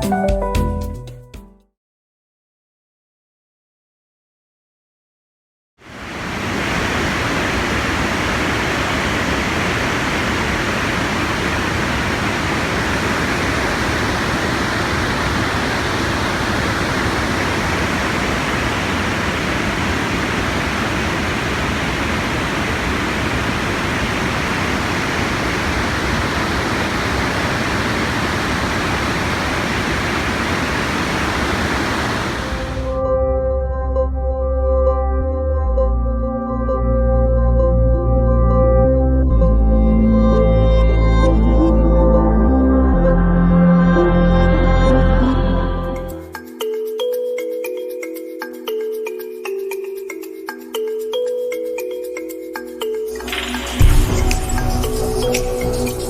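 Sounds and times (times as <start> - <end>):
rushing water: 5.8 - 33.0, 53.1 - 56.0.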